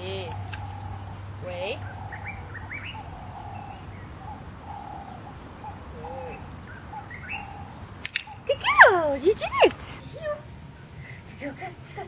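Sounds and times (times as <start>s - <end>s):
higher bird chirps: 0.0s - 9.8s
birds calling: 0.0s - 12.0s.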